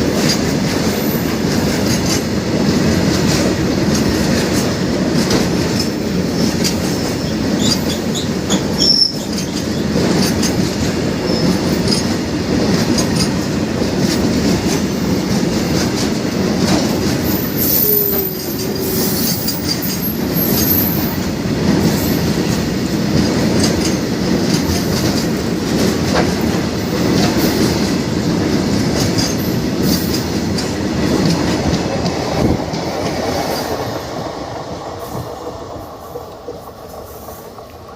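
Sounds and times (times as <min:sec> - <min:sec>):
clicking over rail joints: 0:00.0 - 0:37.9
freight train wheel rumble: 0:00.0 - 0:37.9.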